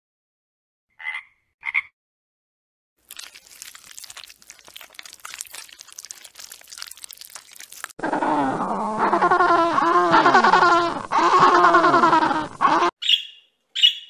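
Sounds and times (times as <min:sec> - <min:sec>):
animal calling: 0:07.5 - 0:14.0.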